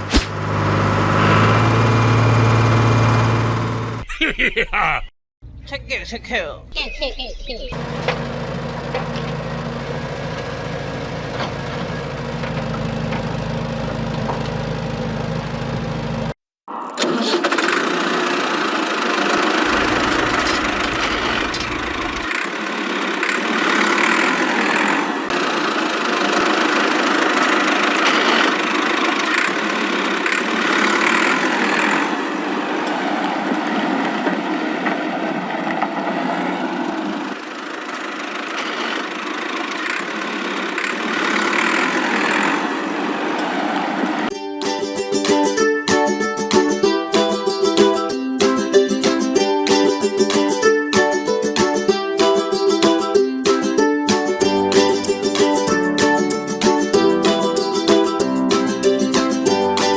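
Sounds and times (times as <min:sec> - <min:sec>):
rough machine noise: 0:00.0 - 0:04.0, 0:07.8 - 0:16.4, 0:17.0 - 0:44.3
small engine humming: 0:00.0 - 0:04.0, 0:07.8 - 0:16.3, 0:17.0 - 0:44.3.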